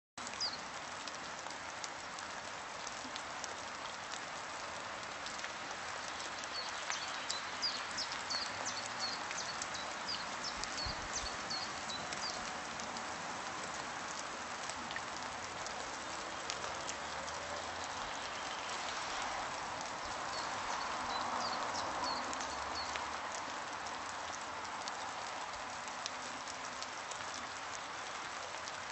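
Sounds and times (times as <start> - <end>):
small birds chirping: 0.4 - 0.6, 6.0 - 12.5, 20.0 - 23.0.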